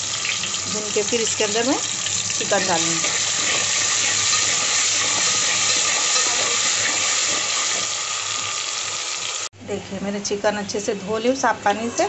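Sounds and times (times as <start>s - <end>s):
spices sizzling in hot oil: 0.0s - 9.5s
spoon stirring: 2.3s - 7.9s.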